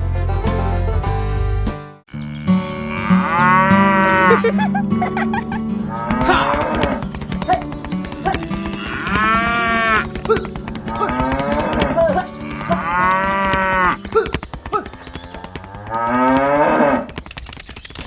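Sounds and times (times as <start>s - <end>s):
cattle mooing: 2.1s - 4.5s, 5.8s - 7.6s, 8.2s - 17.2s
scattered clicks: 6.0s - 18.0s.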